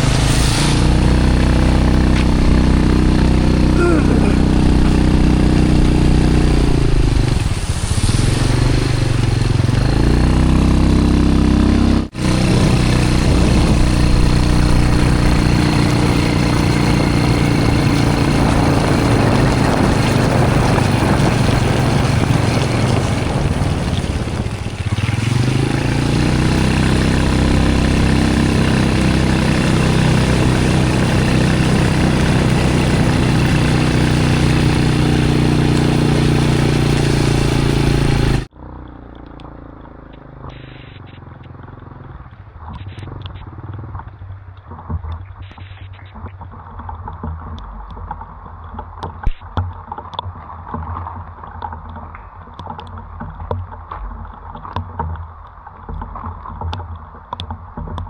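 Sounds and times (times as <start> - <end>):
motorbike engine cruising: 0.0 - 45.7
road and wind noise: 0.0 - 58.0.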